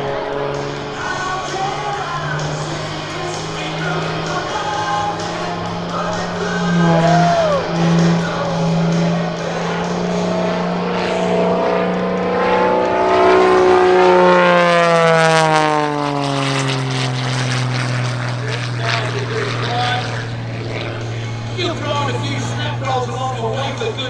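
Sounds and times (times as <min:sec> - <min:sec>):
propeller plane droning past: 0:00.0 - 0:24.0.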